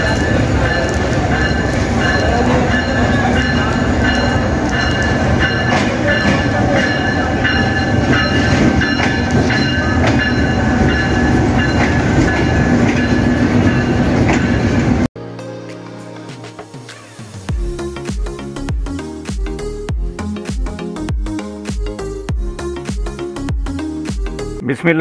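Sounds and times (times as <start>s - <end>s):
passenger train rumbling past: 0.0s - 15.1s
wheels clicking over rail joints: 0.0s - 15.1s.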